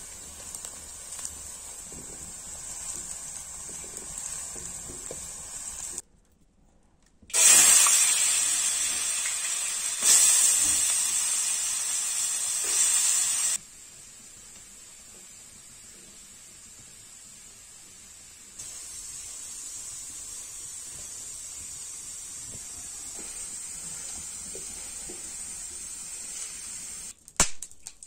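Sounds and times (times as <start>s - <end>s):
faint frying: 0.0s - 6.0s, 7.3s - 27.2s
potatoes sizzling in hot oil: 0.0s - 6.0s, 7.3s - 27.2s
potatoes dropped into oil: 27.3s - 28.0s.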